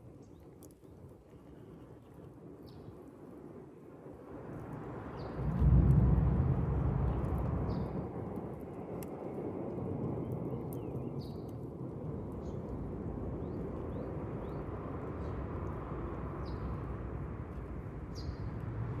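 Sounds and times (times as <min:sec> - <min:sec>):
low outdoor rumble: 0:05.0 - 0:09.0, 0:11.5 - 0:19.0.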